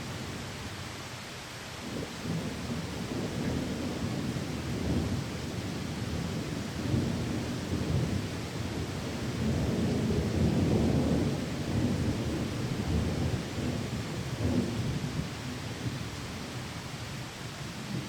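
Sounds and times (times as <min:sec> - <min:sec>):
heavy rain: 0:00.0 - 0:18.0
rolling thunder: 0:01.9 - 0:16.0.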